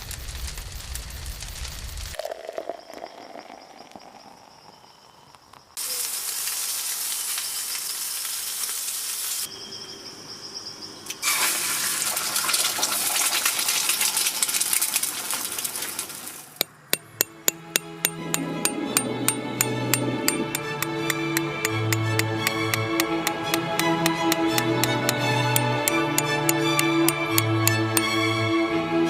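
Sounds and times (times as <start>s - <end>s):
food sizzling on a grill: 0.0s - 2.2s, 5.8s - 9.5s
background music with clicking beat: 17.0s - 28.2s.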